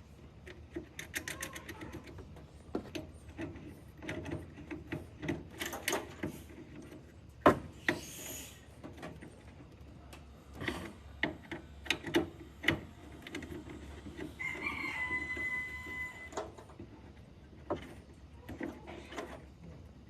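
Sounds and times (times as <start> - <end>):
drawn-out animal call: 14.2 - 16.4.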